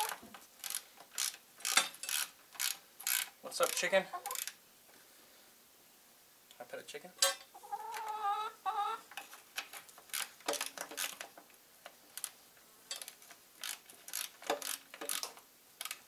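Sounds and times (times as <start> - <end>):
ratchet wrench clicking: 0.6 - 4.5, 12.9 - 16.0.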